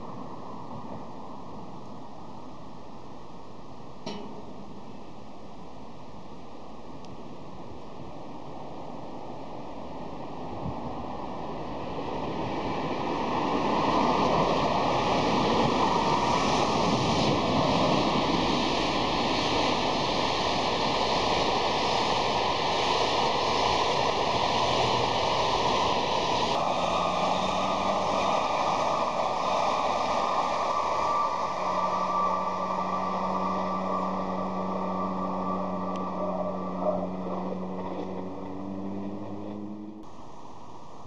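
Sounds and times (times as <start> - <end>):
train wheels rushing on rail: 8.8 - 39.7.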